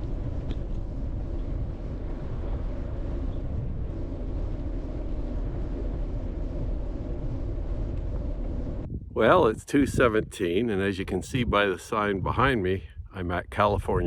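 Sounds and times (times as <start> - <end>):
bicycle tyres rolling on road: 0.0 - 8.9
wind buffeting microphone: 0.0 - 14.0.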